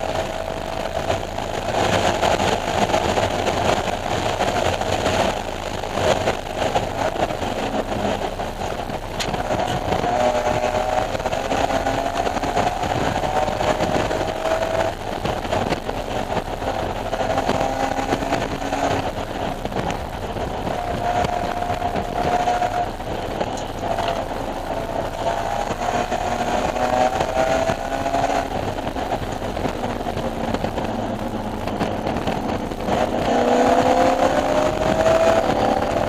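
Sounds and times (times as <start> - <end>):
car engine revving through gears: 0.0 - 36.0.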